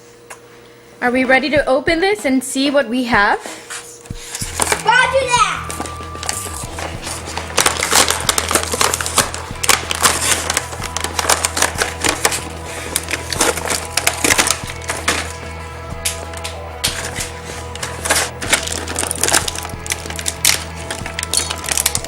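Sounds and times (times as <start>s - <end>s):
background music with bass line: 4.1s - 22.0s
toy packaging crinkling and clicking: 4.4s - 5.0s, 5.6s - 15.4s, 16.0s - 22.0s.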